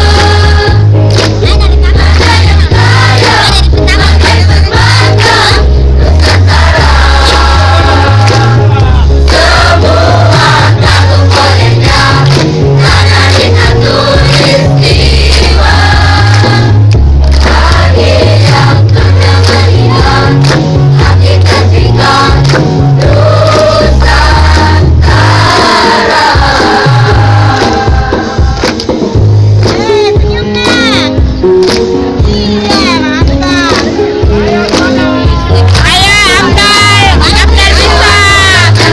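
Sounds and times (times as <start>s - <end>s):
choir singing: 0.0s - 0.9s, 1.9s - 28.6s, 36.4s - 38.9s
heavy bass line accompaniment: 0.0s - 38.9s.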